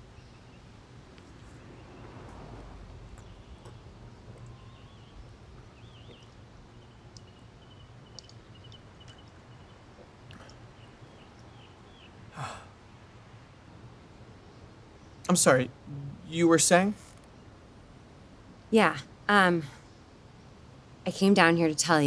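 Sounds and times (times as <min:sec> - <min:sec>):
small birds chirping: 0:00.0 - 0:13.1
low steady hum: 0:00.0 - 0:22.0.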